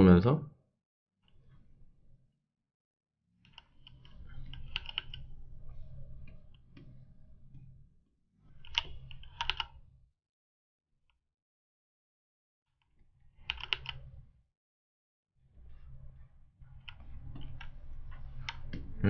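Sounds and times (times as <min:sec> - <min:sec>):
mouse clicks: 0:03.5 - 0:05.3, 0:08.6 - 0:09.8, 0:13.5 - 0:14.1
computer keyboard typing: 0:03.5 - 0:06.0, 0:08.6 - 0:09.8, 0:13.4 - 0:14.1.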